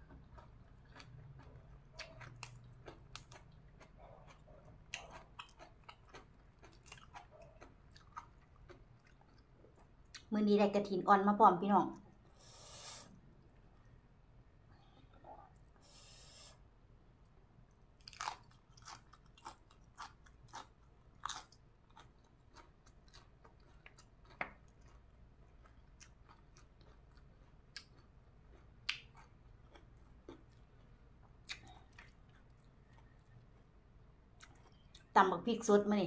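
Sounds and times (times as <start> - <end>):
crunchy chewing and biting: 0.0 - 10.2, 18.0 - 35.1.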